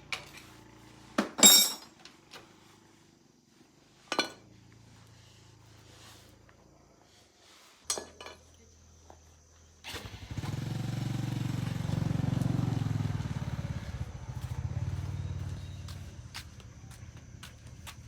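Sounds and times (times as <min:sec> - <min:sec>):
small motorcycle engine running: 0:00.0 - 0:01.2, 0:09.8 - 0:18.0.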